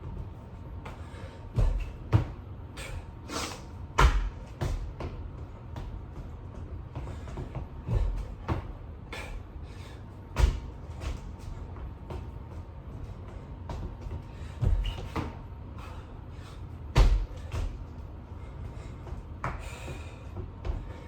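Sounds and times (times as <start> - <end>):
heavy thumps on floor: 1.6 - 2.4, 4.0 - 8.8, 10.4 - 11.4, 13.6 - 15.4, 16.9 - 17.8.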